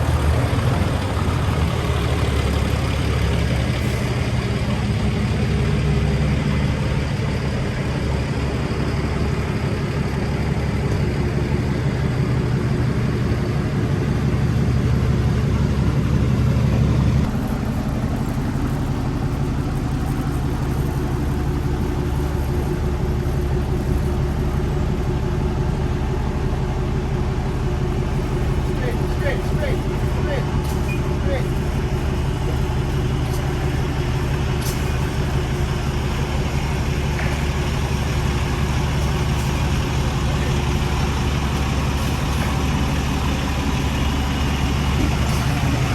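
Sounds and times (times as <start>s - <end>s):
diesel truck engine running: 0.0s - 45.9s.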